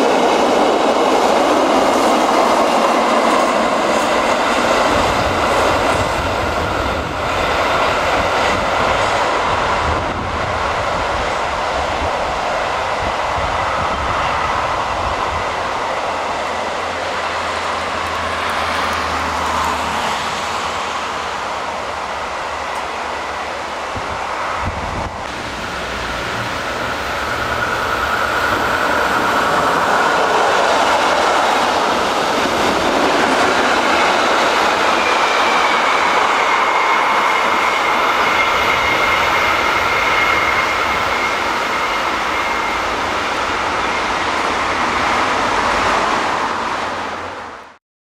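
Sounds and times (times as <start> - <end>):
train wheels rumbling on rails: 0.0 - 47.8
high wheel squeal: 25.5 - 32.3, 33.2 - 45.9.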